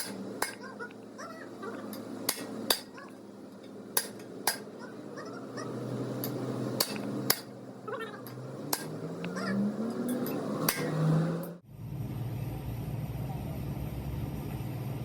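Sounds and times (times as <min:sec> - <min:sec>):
hammer striking metal: 0:00.0 - 0:00.8, 0:01.9 - 0:03.0, 0:03.6 - 0:04.8, 0:06.2 - 0:07.6, 0:08.2 - 0:09.0, 0:10.0 - 0:11.1
low machine hum: 0:00.0 - 0:15.0.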